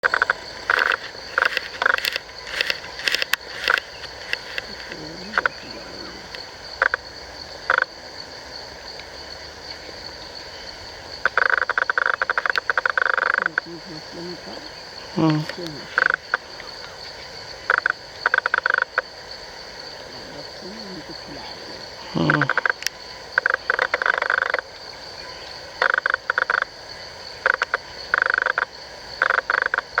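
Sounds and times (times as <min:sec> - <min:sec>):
animal rattling call: 0:00.0 - 0:06.3
frogs croaking: 0:00.0 - 0:30.0
high-pitched insect drone: 0:00.0 - 0:30.0.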